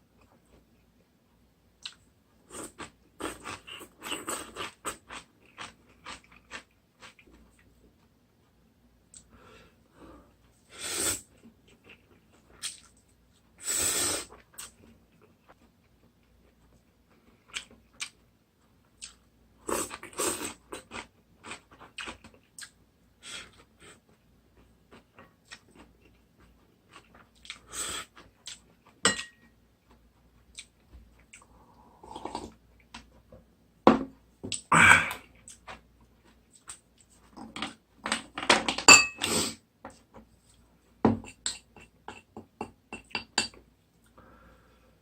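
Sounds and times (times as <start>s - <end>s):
utensil clinking on bowl: 29.1s - 29.5s, 38.8s - 39.3s.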